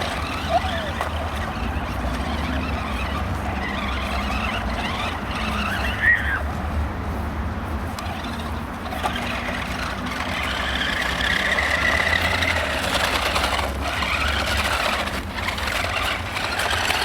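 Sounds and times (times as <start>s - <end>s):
toy truck motor whining: 0.0s - 6.5s, 8.0s - 17.0s.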